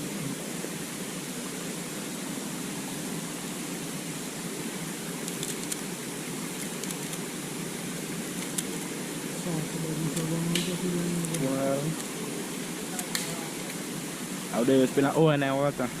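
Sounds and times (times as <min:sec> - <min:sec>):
faint ticks: 0:12.9 - 0:13.8.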